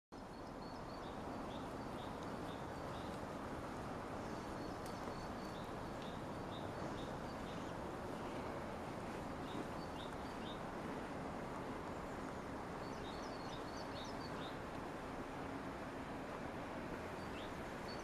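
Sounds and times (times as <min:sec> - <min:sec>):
small birds chirping: 0:00.2 - 0:03.4, 0:04.1 - 0:14.7, 0:17.0 - 0:18.0
steady background hiss: 0:00.2 - 0:18.0.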